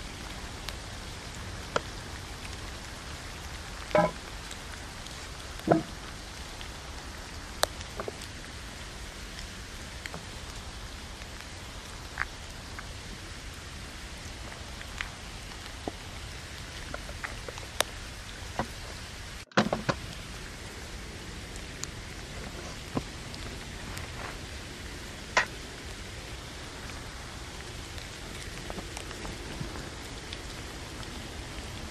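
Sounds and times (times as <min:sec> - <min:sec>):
rain on a tent: 0:00.0 - 0:31.9.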